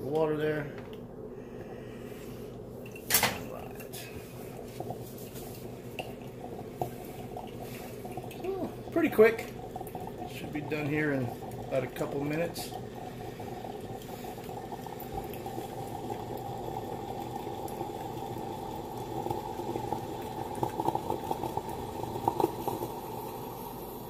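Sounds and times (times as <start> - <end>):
espresso machine bubbling hiss: 3.7 - 24.0
espresso machine sputtering: 6.4 - 24.0.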